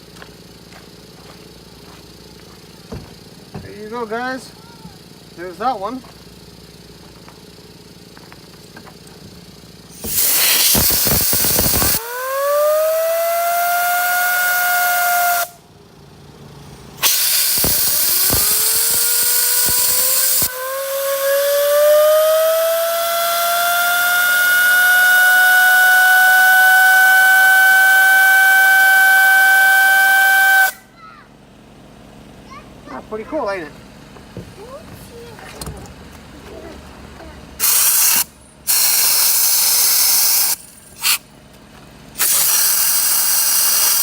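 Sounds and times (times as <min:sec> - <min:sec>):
turbocharger whistling: 0:09.8 - 0:15.7, 0:16.4 - 0:31.0, 0:37.6 - 0:41.4, 0:42.1 - 0:44.0
air hissing: 0:09.9 - 0:15.6, 0:16.5 - 0:30.8, 0:37.6 - 0:41.3, 0:42.2 - 0:44.0.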